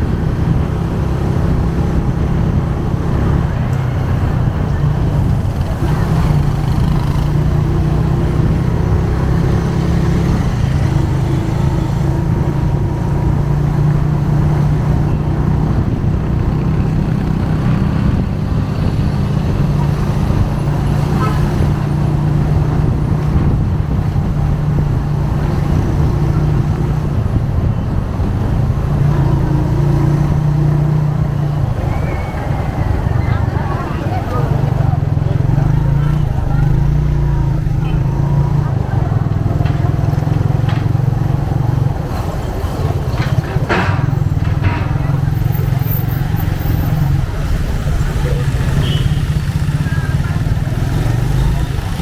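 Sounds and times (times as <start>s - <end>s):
road and wind noise: 0.0s - 52.0s
motorcycle engine running: 43.6s - 52.0s.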